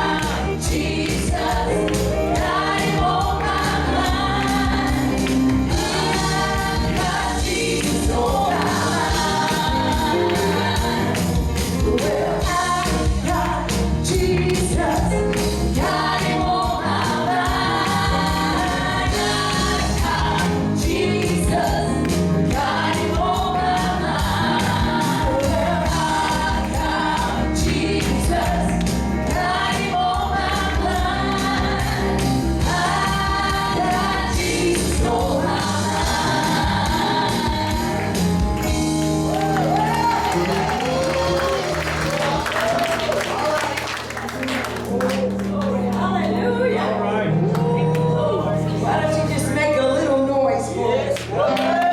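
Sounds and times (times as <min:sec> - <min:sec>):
band with steady drum beat: 0:00.0 - 0:40.7
voices singing gospel: 0:00.0 - 0:51.9.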